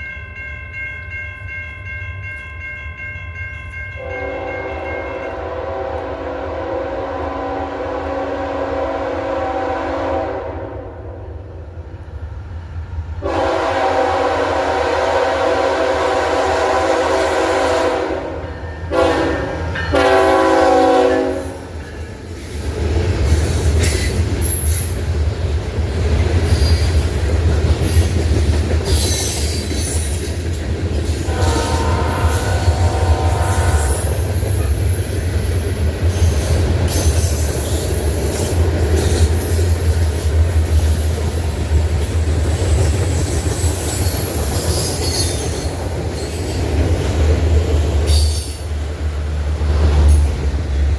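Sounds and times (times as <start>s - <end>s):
train rumbling past on rails: 3.6s - 50.9s
train air horn blasts: 4.0s - 11.4s, 13.2s - 21.7s, 31.2s - 34.9s.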